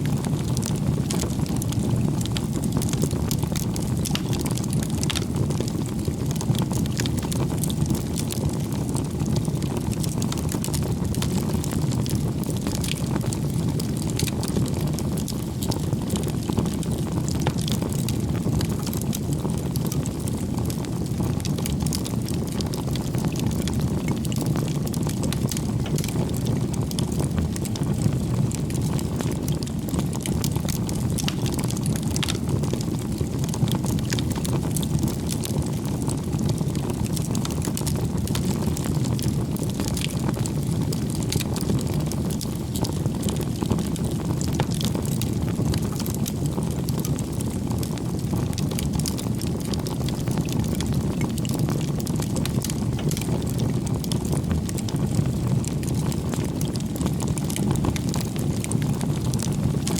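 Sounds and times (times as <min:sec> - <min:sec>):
bonfire flames roaring: 0:00.0 - 0:59.9
fire crackling and popping: 0:00.0 - 0:59.9.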